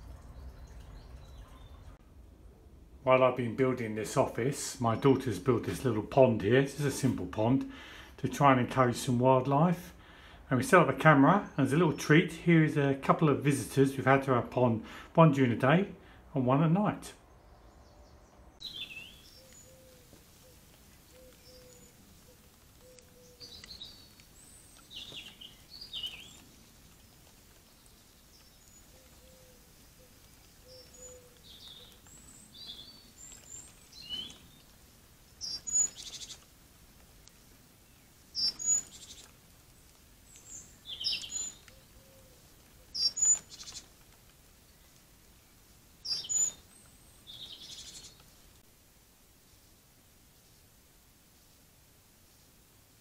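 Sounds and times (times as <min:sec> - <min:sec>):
birds chirping and singing: 0:17.3 - 0:36.5, 0:37.8 - 0:44.0, 0:46.0 - 0:48.4.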